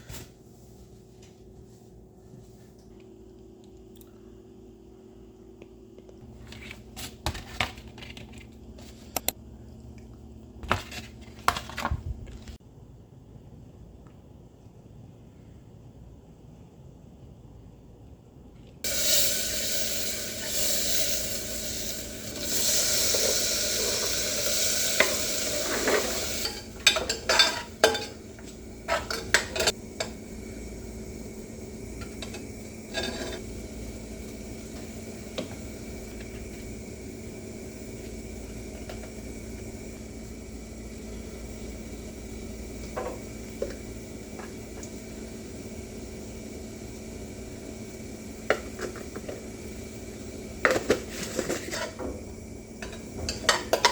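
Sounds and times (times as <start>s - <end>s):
food sizzling in a frying pan: 18.8s - 53.9s.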